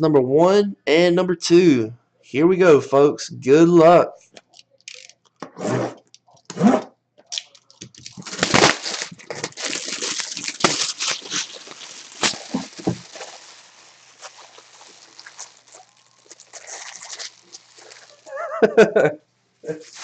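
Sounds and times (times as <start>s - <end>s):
plastic wrap and cardboard crinkling: 7.4s - 18.8s.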